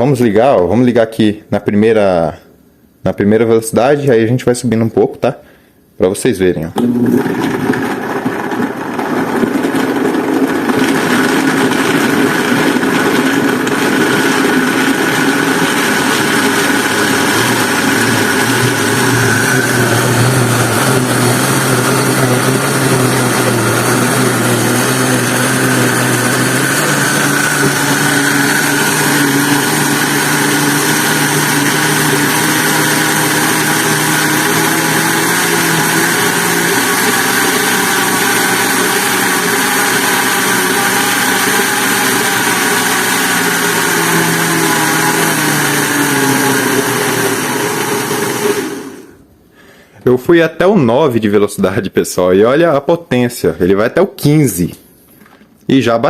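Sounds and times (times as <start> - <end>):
blender motor running: 6.8 - 49.3.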